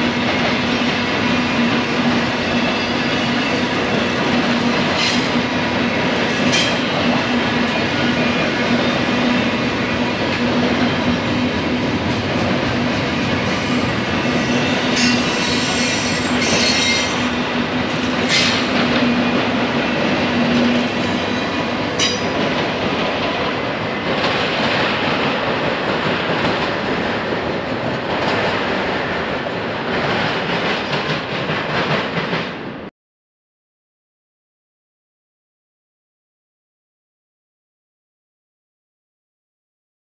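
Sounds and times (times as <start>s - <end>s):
steel wheels rumbling on rail: 0.0s - 32.9s
train wheel squeals: 4.6s - 5.6s, 13.5s - 19.0s.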